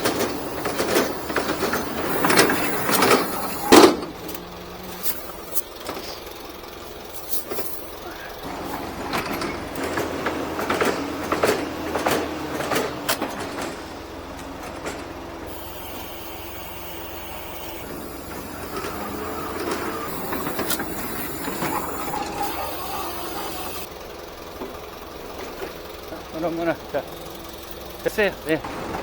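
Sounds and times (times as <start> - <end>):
high mechanical whine: 0.0 - 7.6, 15.4 - 23.9
sharp clanks and knocks: 0.0 - 7.8, 8.5 - 22.7
truck engine and lift machinery: 0.0 - 29.0.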